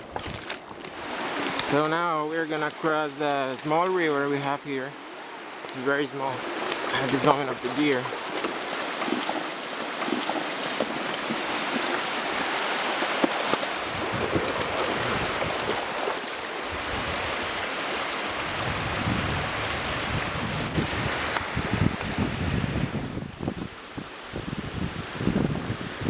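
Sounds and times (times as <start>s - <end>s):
horses splashing through water: 0.0s - 23.2s
river water running: 0.0s - 26.0s
wind buffeting microphone: 6.2s - 26.0s.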